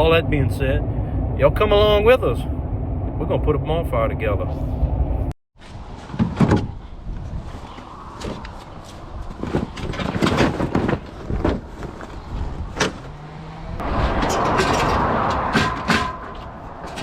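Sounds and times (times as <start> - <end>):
vehicle clunks and knocks: 6.1 - 6.8, 9.3 - 13.5.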